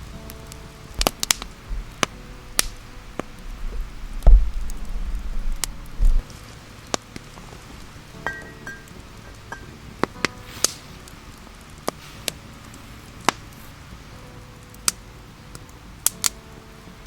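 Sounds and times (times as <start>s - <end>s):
heavy dull thump: 3.6s - 6.3s.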